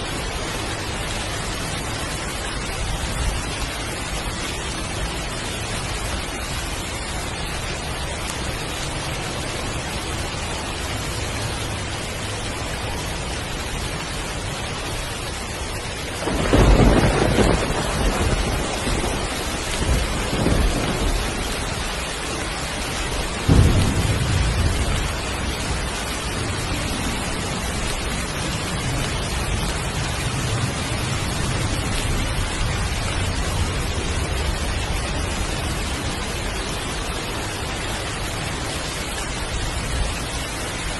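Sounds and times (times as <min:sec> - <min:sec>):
heavy rain falling: 0:00.0 - 0:40.9
thunder rumbling: 0:16.0 - 0:40.2.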